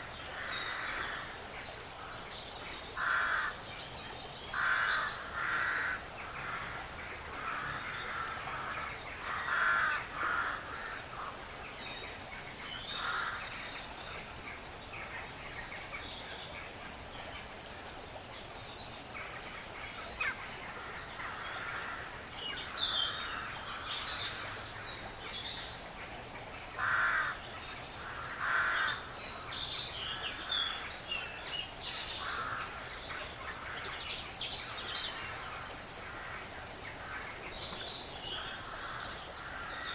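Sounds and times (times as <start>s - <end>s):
songbirds chirping: 0.0s - 39.9s
woodland background hiss: 0.0s - 39.9s
crow cawing: 3.0s - 3.5s, 4.6s - 6.0s, 9.3s - 11.0s, 26.8s - 27.4s, 28.2s - 29.0s.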